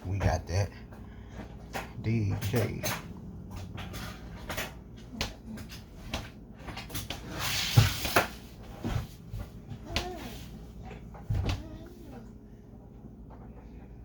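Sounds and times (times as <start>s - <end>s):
handling clicks and knocks: 0.1s - 7.0s.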